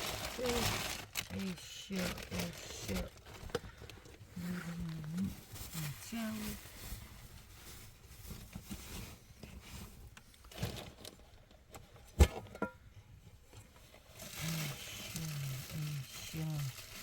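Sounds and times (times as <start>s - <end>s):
handling noises: 0.0s - 17.0s
low voice speaking: 0.3s - 3.2s, 4.4s - 6.6s, 14.4s - 16.8s.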